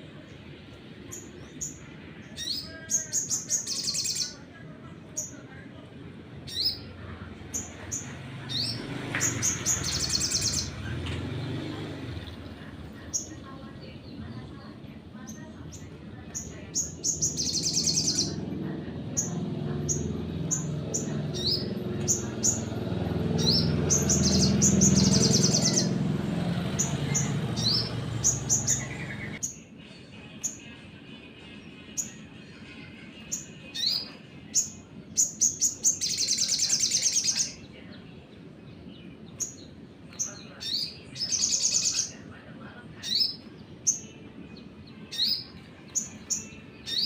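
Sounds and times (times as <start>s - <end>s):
songbird chirping: 0.0s - 47.0s
sunbird chirps: 7.5s - 10.9s, 15.3s - 18.4s, 23.3s - 26.0s, 26.7s - 29.5s, 33.8s - 37.7s.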